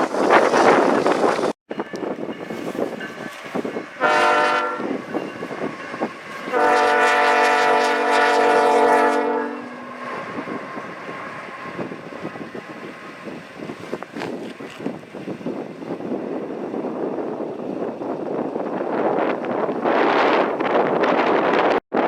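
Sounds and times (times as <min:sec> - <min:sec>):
wind buffeting microphone: 0:00.0 - 0:22.0
locomotive air horn blasts: 0:04.0 - 0:05.0, 0:06.4 - 0:10.6.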